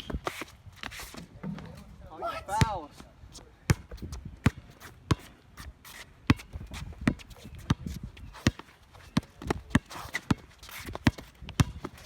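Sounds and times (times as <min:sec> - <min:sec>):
shoe scuffs on court: 0:00.0 - 0:01.9, 0:02.9 - 0:11.3
basketball bouncing: 0:11.0 - 0:12.0.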